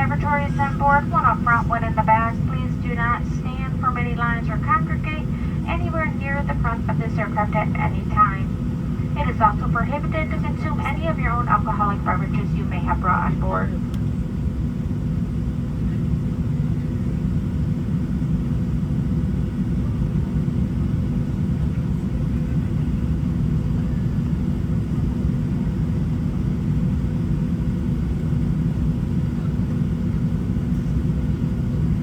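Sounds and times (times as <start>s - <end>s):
faint steady hum: 0.0s - 18.7s
airplane cabin rumble: 0.0s - 32.0s.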